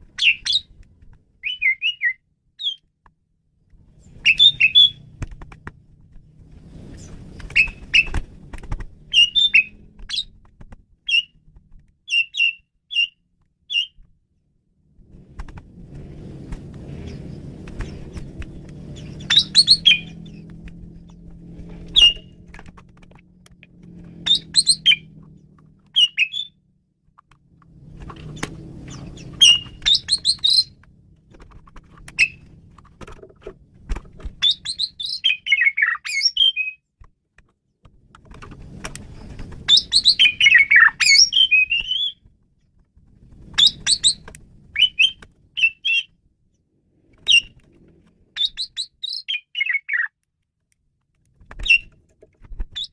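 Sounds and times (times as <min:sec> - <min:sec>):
starling whistling and chattering: 0:00.2 - 0:00.7, 0:01.4 - 0:02.8, 0:04.0 - 0:05.0, 0:07.0 - 0:08.2, 0:09.1 - 0:10.3, 0:11.1 - 0:11.4, 0:12.1 - 0:14.0, 0:19.0 - 0:20.4, 0:21.9 - 0:22.4, 0:24.2 - 0:25.1, 0:25.9 - 0:26.6, 0:28.4 - 0:30.8, 0:32.1 - 0:32.6, 0:34.4 - 0:36.8, 0:39.6 - 0:42.2, 0:43.6 - 0:44.2, 0:44.8 - 0:46.1, 0:47.3 - 0:47.6, 0:48.4 - 0:50.1.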